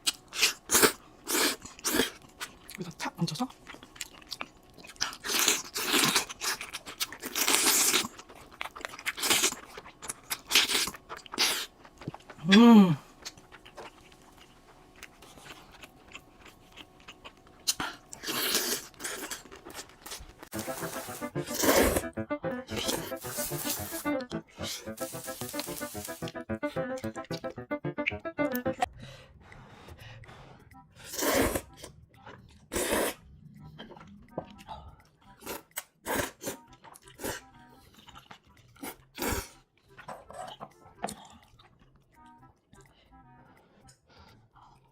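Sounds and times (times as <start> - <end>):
person chewing: 0.0 - 22.0, 32.5 - 37.4, 38.0 - 42.0.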